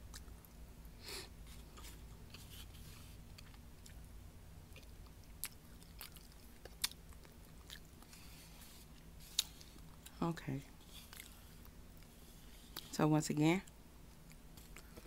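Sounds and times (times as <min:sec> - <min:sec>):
person chewing food: 0:00.0 - 0:00.6, 0:01.5 - 0:04.0, 0:04.6 - 0:10.2, 0:10.8 - 0:12.9, 0:14.1 - 0:15.0.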